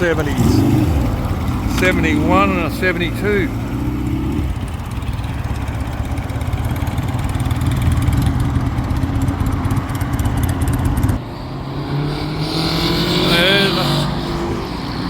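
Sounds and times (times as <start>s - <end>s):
motorcycle engine idling: 0.0s - 11.2s.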